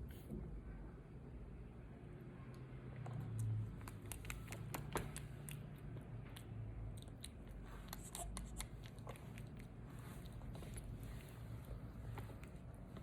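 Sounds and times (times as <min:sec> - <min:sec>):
low steady hum: 0:00.0 - 0:13.0
monkey chewing: 0:03.7 - 0:11.2.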